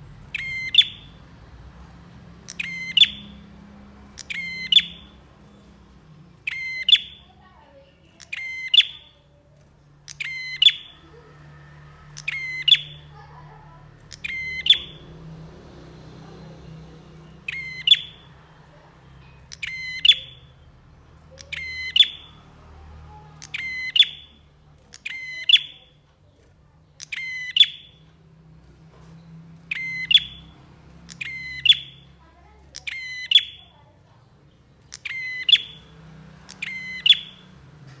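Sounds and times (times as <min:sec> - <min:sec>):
faint low hum: 0:00.0 - 0:38.0
bird trilled call: 0:00.2 - 0:05.8, 0:06.4 - 0:09.4, 0:10.0 - 0:15.1, 0:17.2 - 0:22.4, 0:23.3 - 0:26.0, 0:27.0 - 0:28.1, 0:29.6 - 0:33.8, 0:34.7 - 0:37.6.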